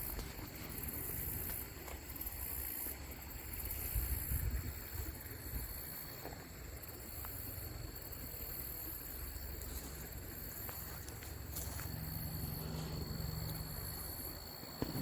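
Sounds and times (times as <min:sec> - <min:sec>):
wind rumble on microphone: 0:03.9 - 0:05.7.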